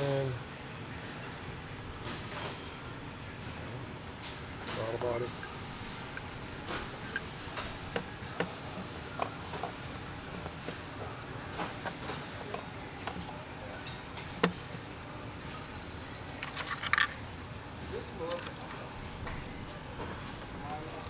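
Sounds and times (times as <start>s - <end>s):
steady background noise: 0.0s - 21.0s
hand tools clicking and tapping: 4.7s - 17.2s, 18.0s - 21.0s.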